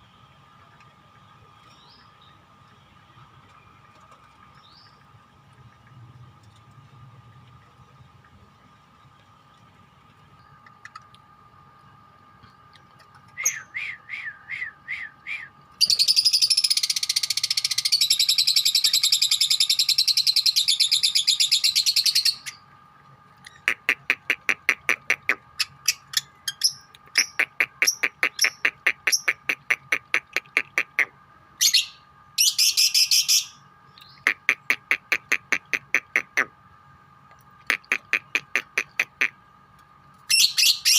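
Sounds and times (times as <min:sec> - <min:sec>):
rapid chattering trill: 0:23.6 - 0:31.1, 0:34.2 - 0:36.5, 0:37.6 - 0:39.4.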